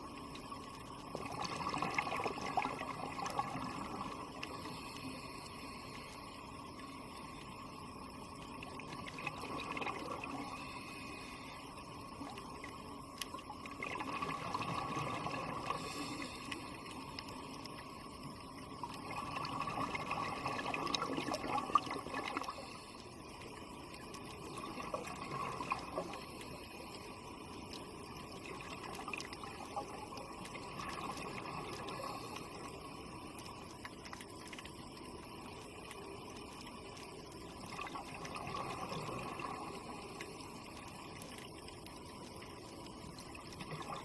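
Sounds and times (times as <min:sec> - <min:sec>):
water bubbling and trickling: 0:00.0 - 0:44.0
small clicks: 0:11.9 - 0:14.1, 0:15.7 - 0:19.1, 0:25.7 - 0:44.0.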